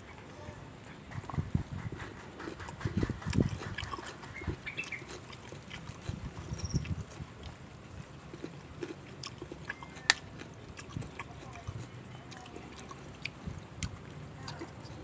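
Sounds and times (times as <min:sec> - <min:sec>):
person chewing and crunching: 0:02.0 - 0:15.0
wet mouth smacking clicks: 0:02.4 - 0:05.2, 0:09.6 - 0:11.0.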